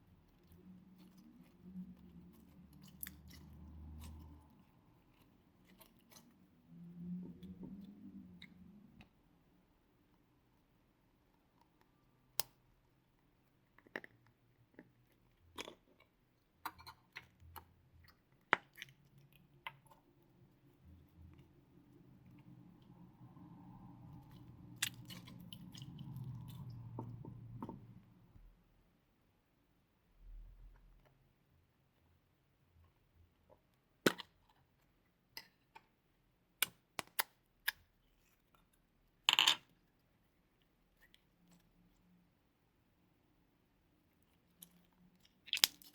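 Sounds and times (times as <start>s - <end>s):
sticky clicks and crackly pops: 44.6s - 45.9s.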